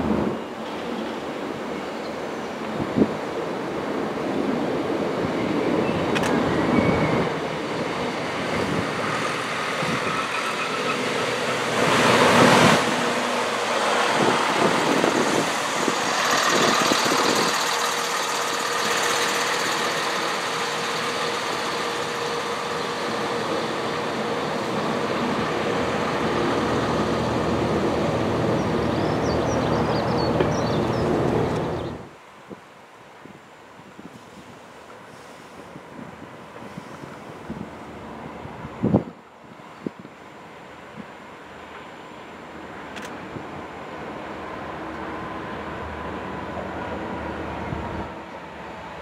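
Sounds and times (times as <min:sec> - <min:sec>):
train clatters: 0:00.0 - 0:31.9, 0:39.9 - 0:49.0
train wheels rumbling on rail: 0:00.0 - 0:49.0
steady whine: 0:12.8 - 0:29.0.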